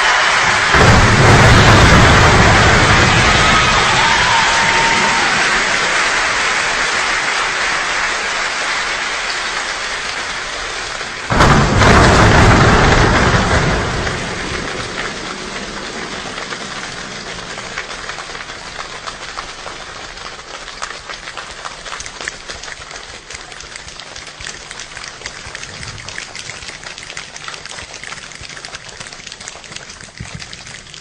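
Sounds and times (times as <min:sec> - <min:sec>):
loud rumble: 0:00.0 - 0:06.6, 0:11.3 - 0:19.1
heavy rain falling: 0:00.0 - 0:28.0.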